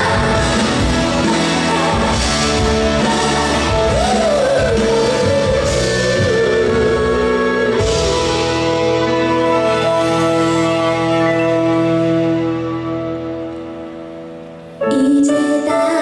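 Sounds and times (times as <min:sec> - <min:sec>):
woman singing: 0:00.0 - 0:08.7, 0:14.8 - 0:16.0
band playing with drums: 0:00.0 - 0:11.4.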